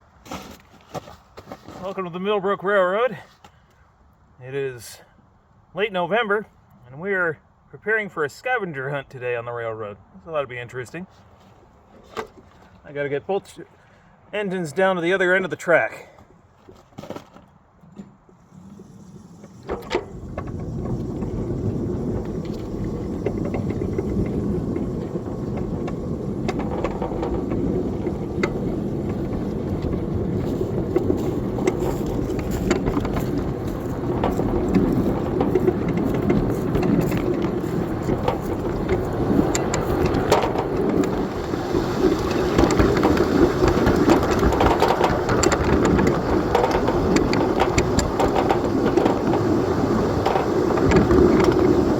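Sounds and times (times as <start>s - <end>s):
clicks and knocks of train: 16.7s - 51.9s
steel wheels rumbling on rail: 18.4s - 51.9s.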